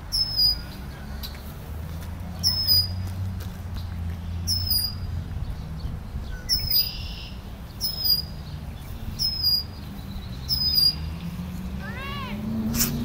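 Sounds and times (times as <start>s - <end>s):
bird sharp high calls: 0.1s - 0.8s, 2.4s - 3.0s, 4.4s - 5.1s, 6.3s - 11.2s.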